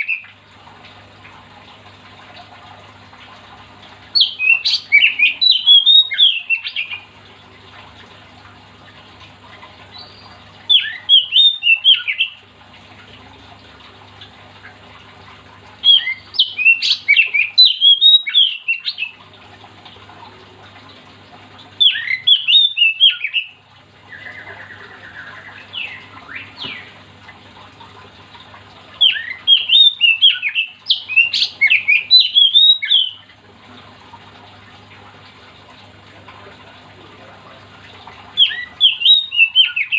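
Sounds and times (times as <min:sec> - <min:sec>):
bird singing chattering notes: 0:04.2 - 0:07.0, 0:09.9 - 0:12.4, 0:21.8 - 0:27.0, 0:29.0 - 0:33.3.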